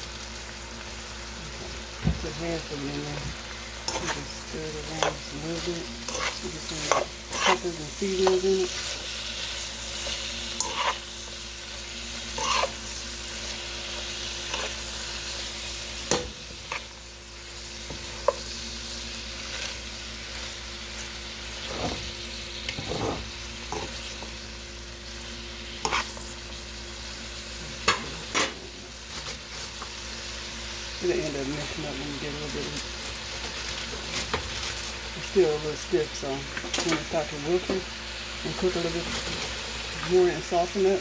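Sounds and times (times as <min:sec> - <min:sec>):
vegetables sizzling in a pot: 0:00.0 - 0:41.0
utensil scraping a pan: 0:03.9 - 0:09.0, 0:10.0 - 0:11.1, 0:12.4 - 0:12.8, 0:22.7 - 0:23.9, 0:25.8 - 0:26.2.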